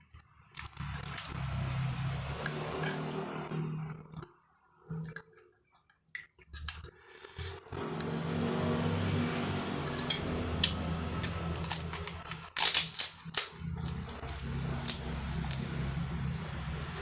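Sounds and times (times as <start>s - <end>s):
crackers crunching: 0.5s - 3.2s, 9.3s - 17.0s
vehicle engine running: 0.8s - 4.2s, 7.4s - 17.0s
utensils clattering on a plate: 9.8s - 10.8s.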